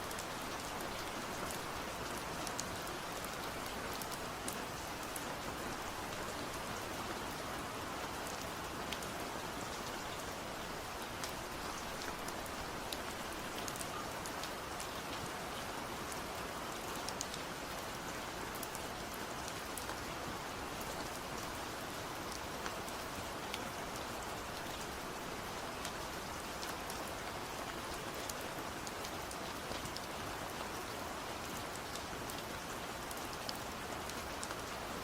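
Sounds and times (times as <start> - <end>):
raindrops ticking on surface: 0.1 - 6.8, 8.2 - 21.6.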